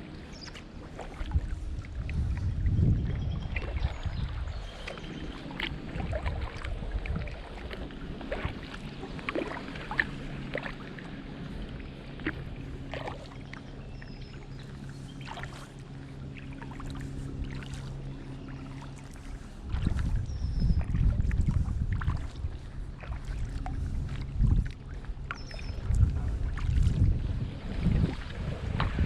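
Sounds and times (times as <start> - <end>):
steady low hum: 0.0 - 29.0
water dripping off paddle: 4.8 - 11.0, 12.2 - 13.6, 23.0 - 27.0.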